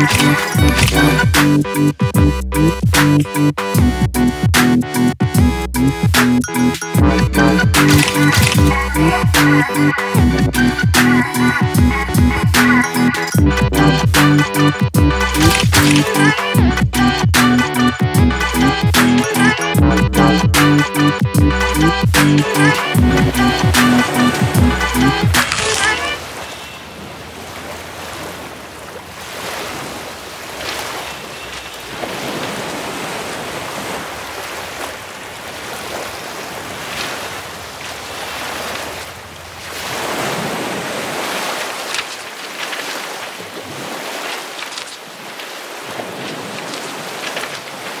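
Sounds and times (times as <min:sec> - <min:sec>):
sea waves washing in: 0:22.2 - 0:48.0.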